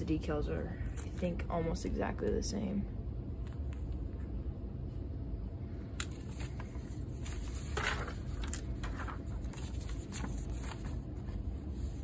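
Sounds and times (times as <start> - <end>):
steady low hum: 0.0 - 12.0
paper rustling: 6.0 - 12.0.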